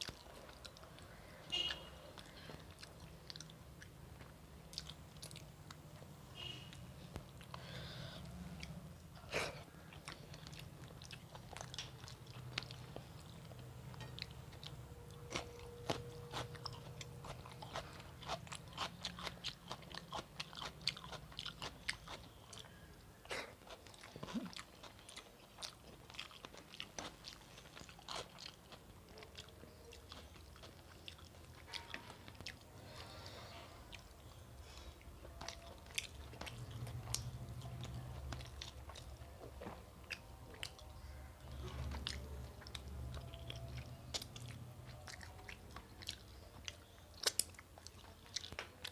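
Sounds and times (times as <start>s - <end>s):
person chewing and crunching: 0.0s - 6.5s, 7.1s - 48.9s
steady low hum: 0.0s - 24.8s.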